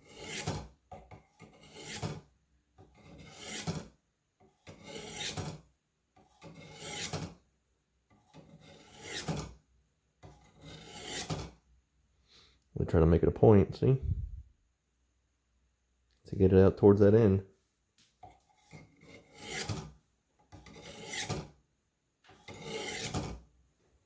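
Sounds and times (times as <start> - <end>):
knife rasping through sharpener: 0.0 - 0.7, 1.4 - 2.2, 3.0 - 3.9, 4.6 - 5.6, 6.4 - 7.4, 8.3 - 9.5, 10.3 - 11.6, 18.5 - 19.9, 20.6 - 21.5, 22.4 - 23.4.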